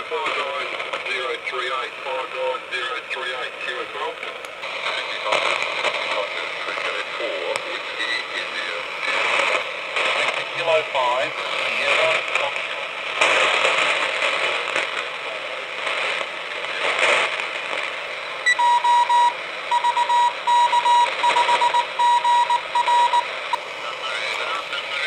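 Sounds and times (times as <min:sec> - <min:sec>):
radio static hiss and crackle: 0:00.0 - 0:25.0
morse code beeps: 0:18.4 - 0:23.3.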